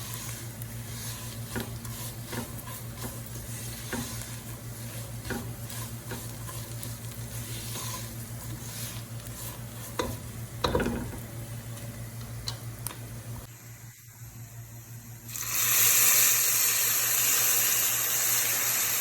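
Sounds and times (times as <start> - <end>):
food sizzling and bubbling: 0.0 - 14.0, 14.7 - 19.0
spoon knocking against pot: 10.0 - 11.2.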